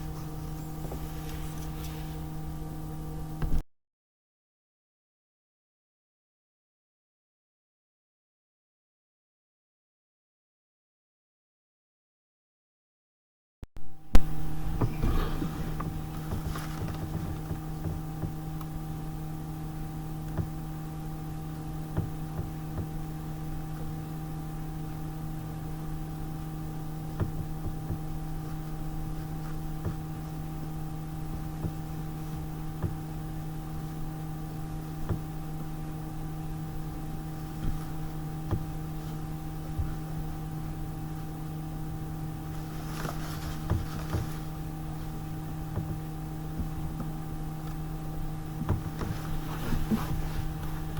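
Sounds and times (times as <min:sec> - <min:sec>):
steady machine hum: 0:00.0 - 0:03.6, 0:13.8 - 0:50.9
light clicks and knocks: 0:14.2 - 0:19.1, 0:42.5 - 0:46.0, 0:48.6 - 0:50.9.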